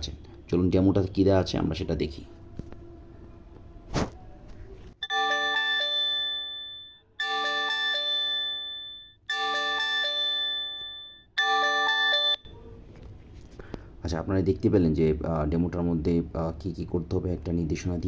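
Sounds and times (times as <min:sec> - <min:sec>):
phone alarm chime: 0:05.0 - 0:12.5.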